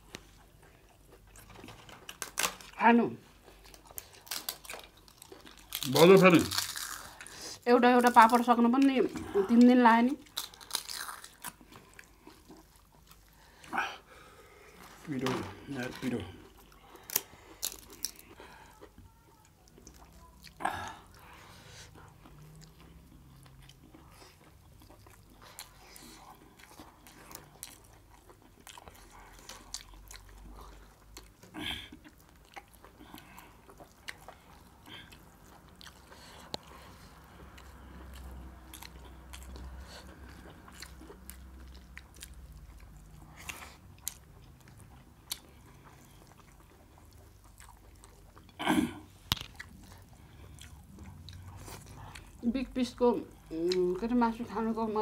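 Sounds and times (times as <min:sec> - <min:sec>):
chewing and biting food: 0:00.0 - 0:14.0, 0:15.7 - 0:54.8
crunching wafers: 0:03.6 - 0:07.3.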